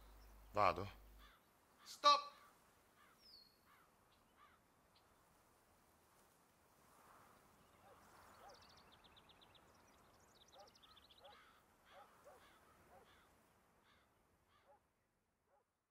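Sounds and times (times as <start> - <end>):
short lower bird calls: 0.0 - 5.2, 7.6 - 14.8
faint outdoor ambience: 0.0 - 15.9.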